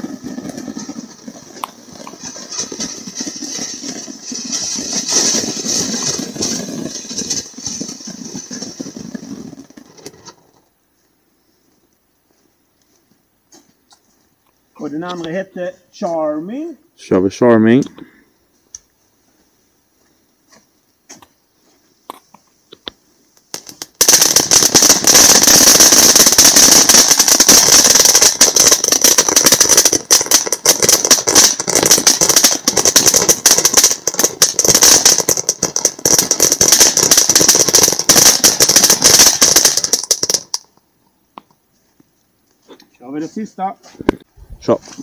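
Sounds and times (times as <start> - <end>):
firework fountain hissing and crackling: 0.0 - 10.4, 22.9 - 40.8.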